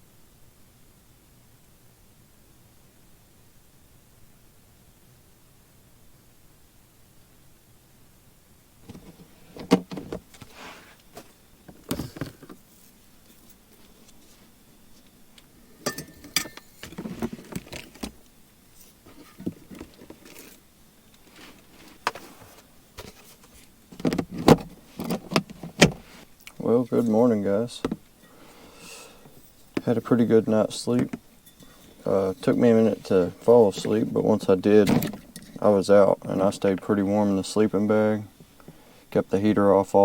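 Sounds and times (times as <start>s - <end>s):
rustling: 8.8s - 37.4s
knocks and clicks of handling: 21.2s - 26.1s, 31.0s - 32.5s.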